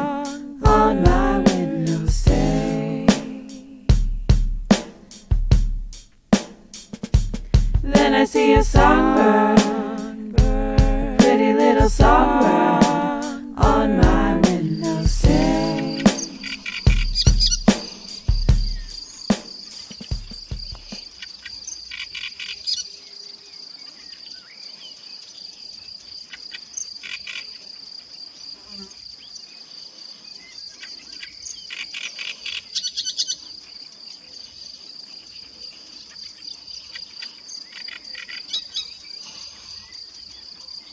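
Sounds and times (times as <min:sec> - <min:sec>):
low thumps: 0:07.0 - 0:19.0
insect trill: 0:14.5 - 0:40.9
rapid bird chatter: 0:15.7 - 0:22.7.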